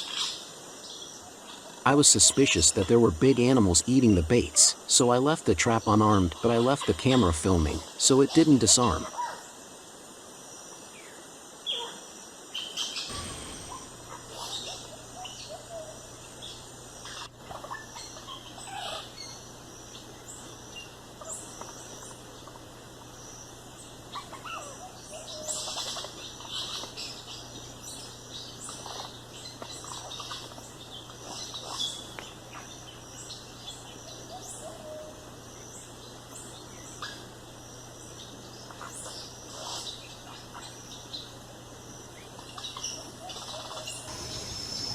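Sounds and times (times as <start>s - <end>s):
animal chirps and calls: 12.6s - 20.1s, 24.1s - 35.2s, 38.7s - 41.0s, 42.2s - 44.9s
steady low hum: 13.1s - 44.9s.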